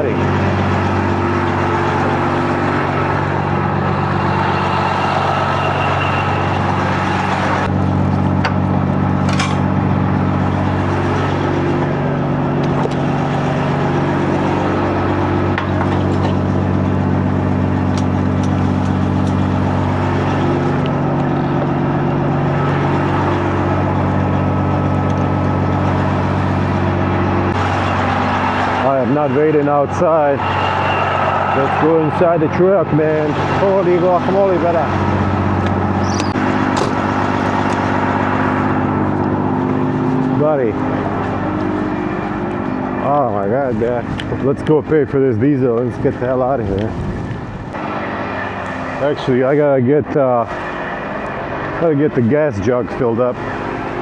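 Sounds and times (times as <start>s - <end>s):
diesel engine idling: 0.0s - 54.0s
wind noise: 43.6s - 47.8s.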